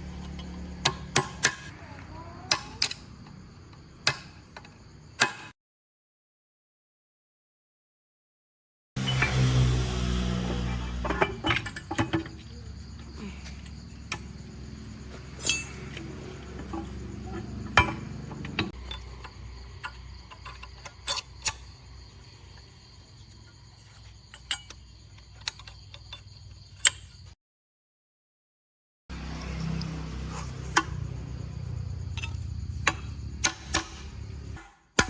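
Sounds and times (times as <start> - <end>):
metal tools clinking: 10.6 - 22.0, 23.5 - 27.3.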